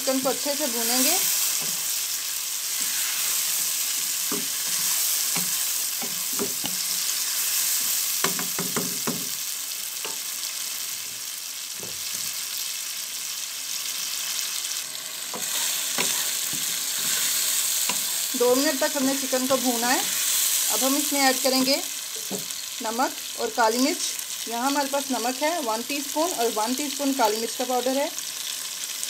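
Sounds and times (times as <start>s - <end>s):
chicken sizzling in oil: 0.0s - 29.0s
wooden spatula knocking pan: 5.4s - 6.8s, 8.2s - 9.4s.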